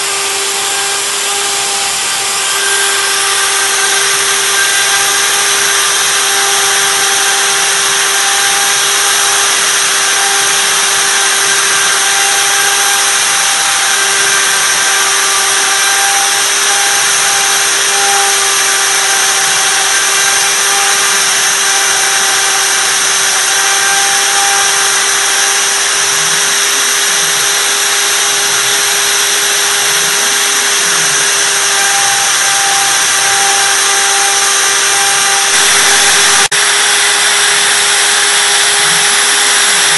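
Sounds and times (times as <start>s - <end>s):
hiss of wood cutting: 0.0s - 39.9s
router spindle whine: 0.0s - 39.9s.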